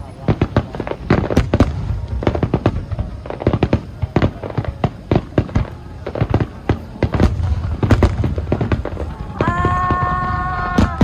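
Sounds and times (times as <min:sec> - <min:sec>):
fireworks bangs: 0:00.0 - 0:11.0
low rolling rumble: 0:07.2 - 0:11.0.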